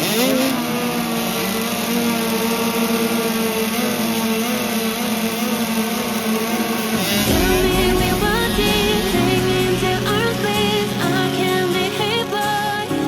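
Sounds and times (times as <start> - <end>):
motocross bike engine at high revs: 0.0 - 7.3
music: 7.1 - 13.0.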